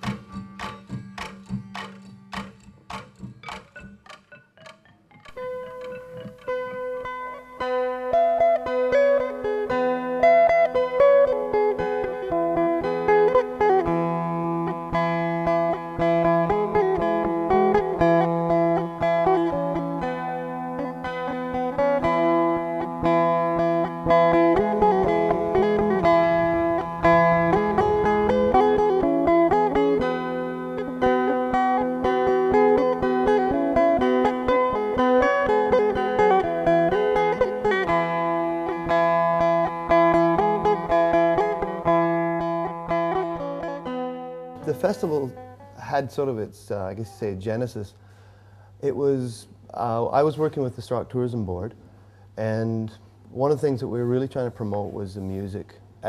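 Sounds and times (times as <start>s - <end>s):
plucked string melody: 0.0s - 46.0s
held drone notes: 23.5s - 31.6s.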